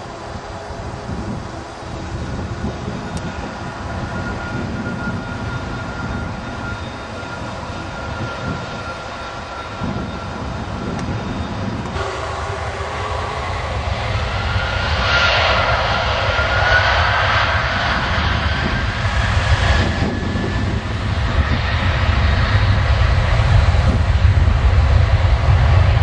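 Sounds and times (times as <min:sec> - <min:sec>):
jet engines running: 0:00.0 - 0:26.0
thin whine: 0:01.7 - 0:22.2.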